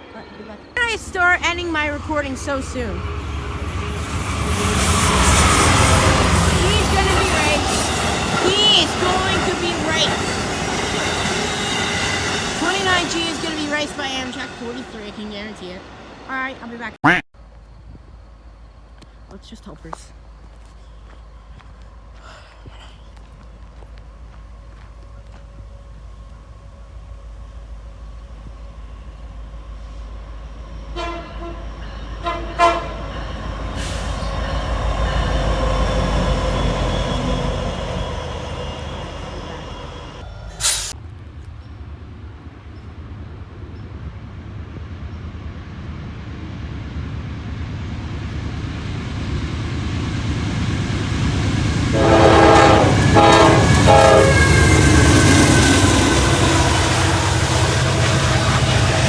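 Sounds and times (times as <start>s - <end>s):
diesel locomotives rumbling: 0.0s - 59.0s
locomotive horn blasts: 30.9s - 33.1s, 51.9s - 56.9s.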